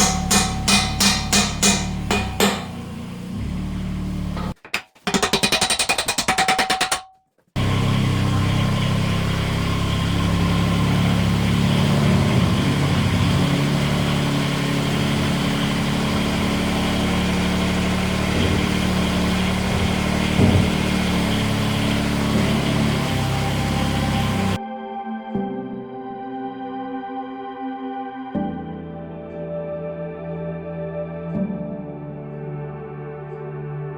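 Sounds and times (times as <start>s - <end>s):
tractor diesel engine running: 0.0s - 4.7s, 7.6s - 24.6s.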